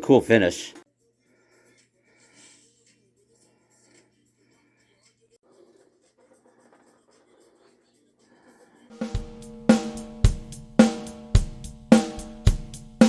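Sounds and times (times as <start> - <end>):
drum kit beat: 8.9 - 13.0.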